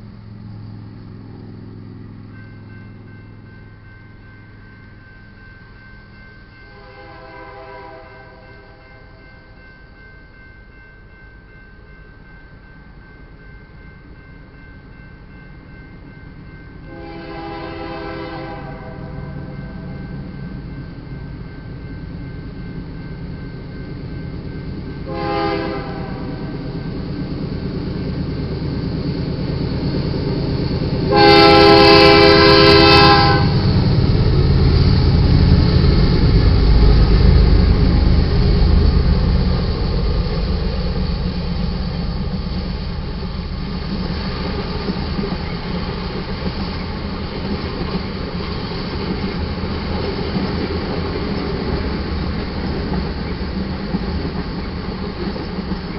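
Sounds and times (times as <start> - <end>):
locomotive engines rumbling: 0.0 - 10.1, 12.2 - 55.9
train horn: 6.7 - 9.2, 16.9 - 20.2, 25.0 - 26.7, 31.1 - 33.8
freight cars clickety-clack: 16.4 - 55.9.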